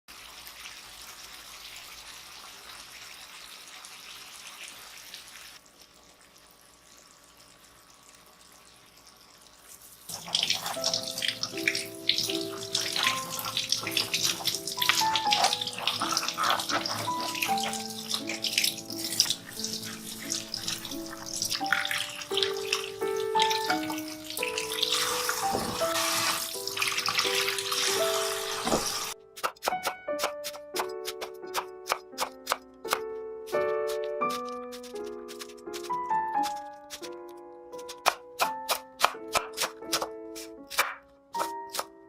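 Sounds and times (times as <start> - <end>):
water running from a tap: 0.1 - 29.2
background music: 10.5 - 42.0.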